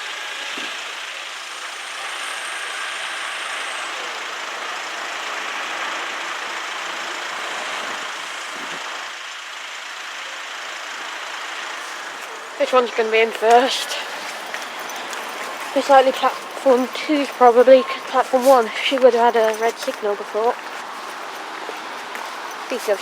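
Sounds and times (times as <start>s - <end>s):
tyres hissing on wet road: 0.0s - 23.0s.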